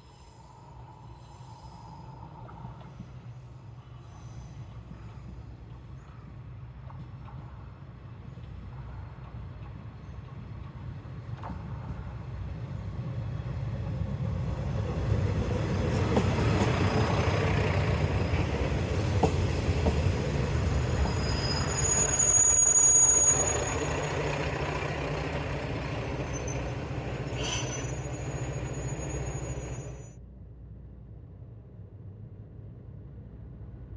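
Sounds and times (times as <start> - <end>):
diesel railcar rumbling past: 0.1 - 30.2
high-pitched wheel squeals: 20.4 - 30.2.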